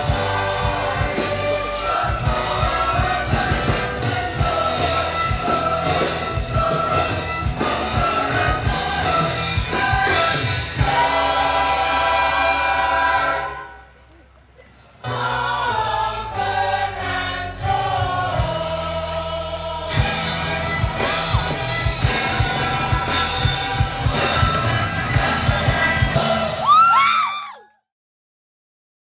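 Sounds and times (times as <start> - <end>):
steady drum beat: 0.0 - 13.1, 17.7 - 26.8
gospel choir singing: 0.0 - 14.0, 15.0 - 26.7.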